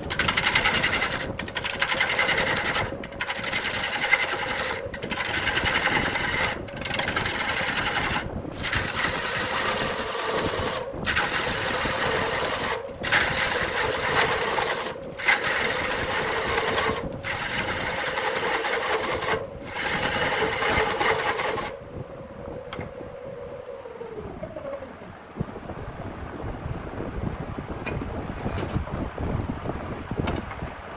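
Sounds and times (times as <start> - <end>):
turning tool scraping wood: 0.0 - 21.8
wood lathe running hum: 0.0 - 21.8.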